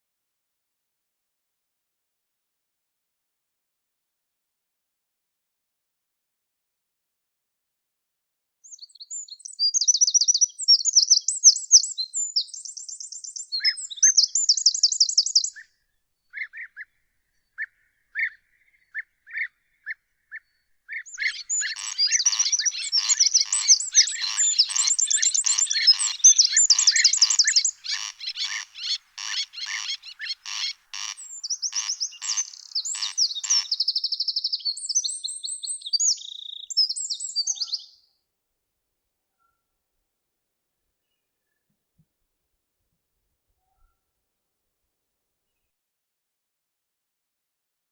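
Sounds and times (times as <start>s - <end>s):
songbirds singing: 8.7s - 15.7s, 16.3s - 38.0s
repeated short bird notes: 20.4s - 37.9s.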